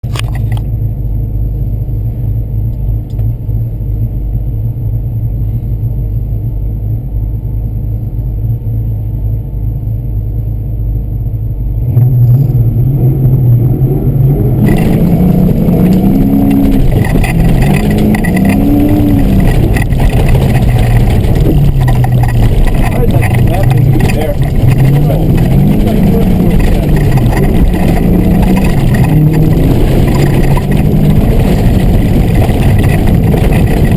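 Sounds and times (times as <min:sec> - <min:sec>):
car engine revving: 0:11.5 - 0:33.9
rushing noise: 0:11.8 - 0:33.9.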